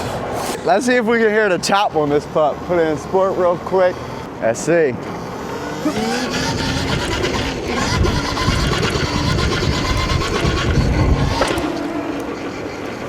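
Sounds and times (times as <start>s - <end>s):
electric motor whining: 5.0s - 13.0s
chain drive rattling: 5.1s - 13.0s
wind buffeting microphone: 6.0s - 13.0s.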